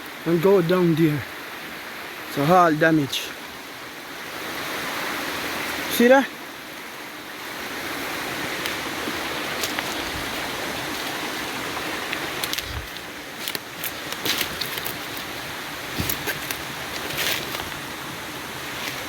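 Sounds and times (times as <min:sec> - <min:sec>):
stream water rushing: 0:00.0 - 0:19.0.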